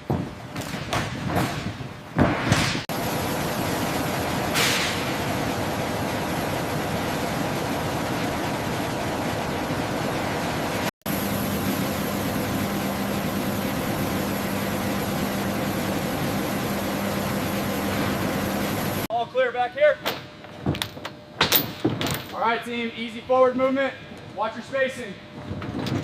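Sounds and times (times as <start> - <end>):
machinery rushing noise: 2.9 - 19.1.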